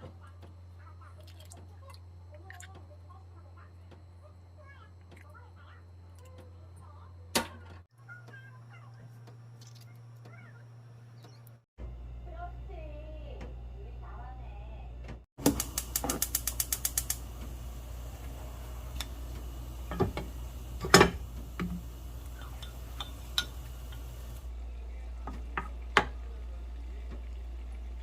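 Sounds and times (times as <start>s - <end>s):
rapid sharp clicks: 15.4s - 17.2s
kitchen utensils clinking: 19.0s - 24.4s.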